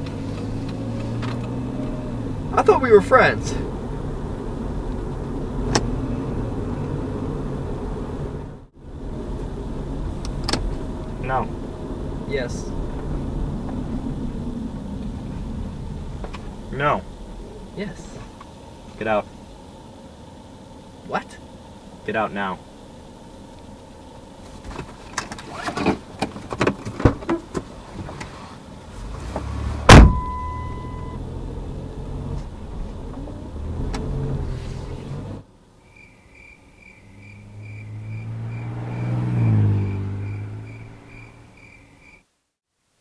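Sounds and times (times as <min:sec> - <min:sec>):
car engine running: 0:00.0 - 0:35.8, 0:37.0 - 0:41.8
car passing by: 0:27.8 - 0:35.4, 0:37.0 - 0:41.8
loud bang with ringing tone: 0:29.9 - 0:31.0
steady beeping: 0:29.9 - 0:31.2.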